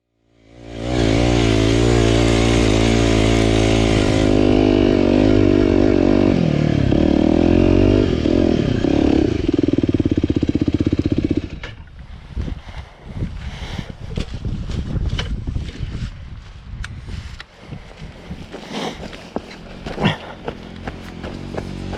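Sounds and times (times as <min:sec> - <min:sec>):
motorcycle engine running: 0:00.3 - 0:12.0, 0:18.5 - 0:21.9.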